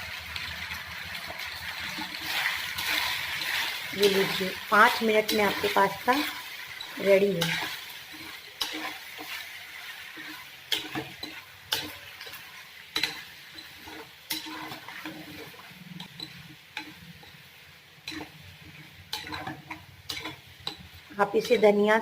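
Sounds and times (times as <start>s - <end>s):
faint sizzle: 0.0s - 22.0s
spoon scraping a pan: 1.6s - 21.9s.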